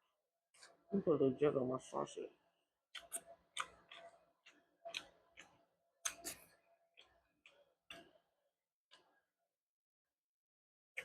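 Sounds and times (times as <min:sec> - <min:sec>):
eating clicks and smacks: 0:02.9 - 0:08.2.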